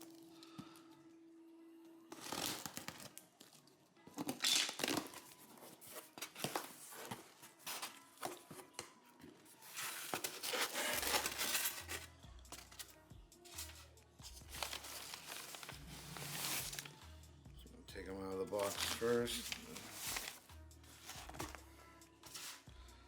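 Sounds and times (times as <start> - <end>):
tape tearing: 2.1 - 3.3, 4.2 - 8.4, 9.7 - 12.9, 14.5 - 17.0, 18.6 - 21.6
packing material crumpling: 2.1 - 8.2, 9.6 - 12.8, 14.5 - 17.0, 18.6 - 21.6.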